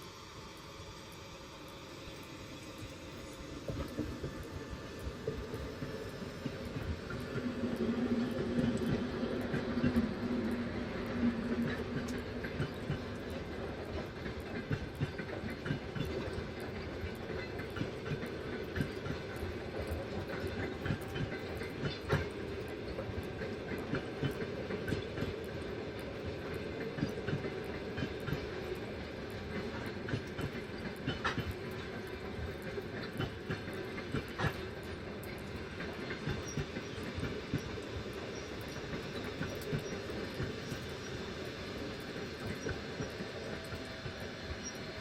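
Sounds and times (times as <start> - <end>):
train rumbling on rails: 0.0 - 45.0
wheels clicking over rail joints: 5.2 - 41.2.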